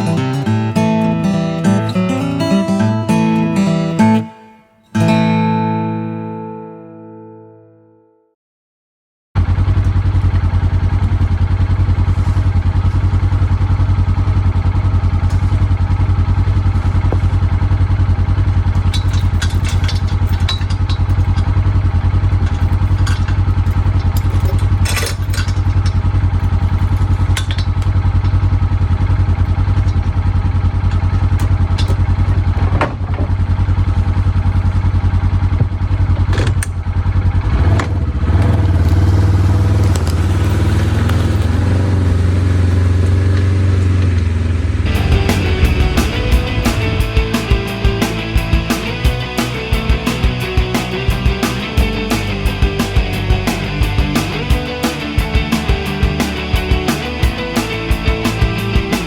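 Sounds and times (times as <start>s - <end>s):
engine running steadily: 9.4s - 59.0s
clatter and knocks: 18.4s - 28.6s, 30.8s - 33.5s, 35.5s - 36.8s.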